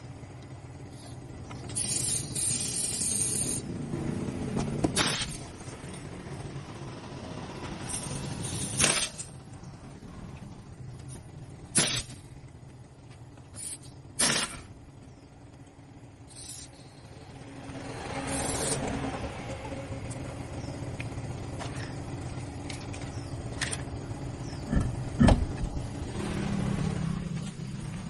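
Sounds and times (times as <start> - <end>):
vehicle engine rumbling: 0.0 - 28.0
sharp metallic clanks: 4.8 - 6.2, 7.8 - 9.5, 11.7 - 12.4, 13.5 - 14.8.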